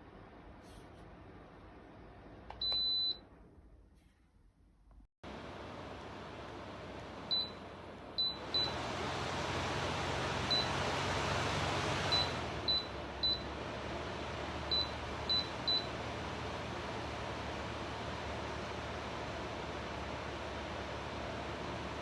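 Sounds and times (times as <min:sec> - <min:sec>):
electric fan blowing: 0:05.3 - 0:22.0.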